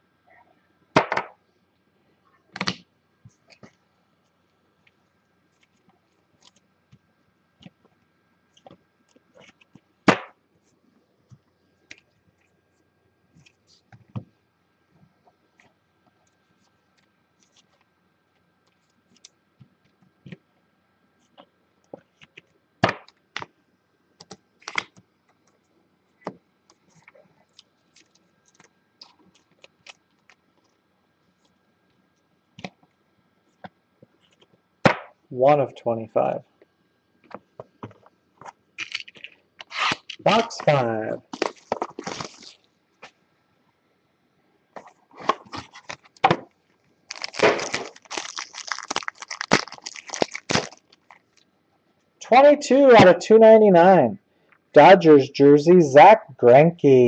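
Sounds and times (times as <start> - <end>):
plastic wrap crackling and tearing: 27.5 - 30.4, 38.8 - 40.4, 41.3 - 42.7, 47.1 - 51.5.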